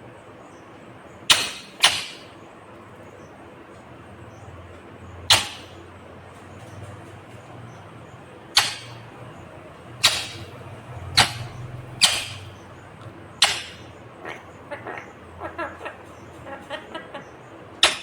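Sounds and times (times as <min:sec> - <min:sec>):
parrot shrill calls: 0:13.4 - 0:17.2.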